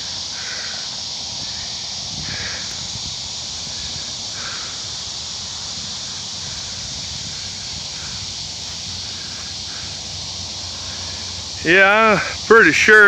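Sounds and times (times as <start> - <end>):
high-pitched hiss: 0.0 - 13.0
faint short calls: 11.6 - 13.0.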